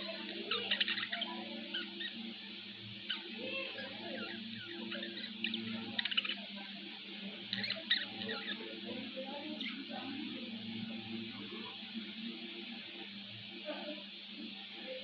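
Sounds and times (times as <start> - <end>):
steady low hum: 0.0 - 15.0
budgerigars chirping: 0.1 - 2.4, 3.0 - 6.7, 7.5 - 8.9.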